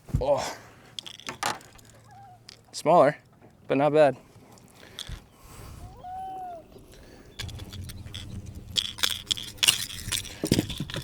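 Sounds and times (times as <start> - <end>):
fishing lure rattling and clicking: 1.0 - 2.8, 4.8 - 5.3, 6.9 - 11.0.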